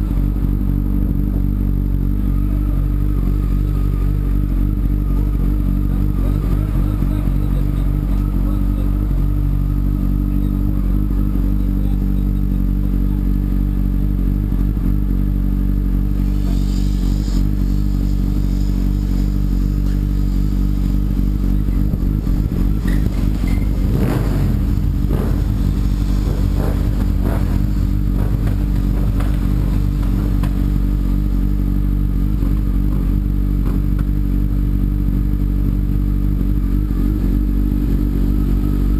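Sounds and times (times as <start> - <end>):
motorcycle engine running steadily: 0.0 - 38.9.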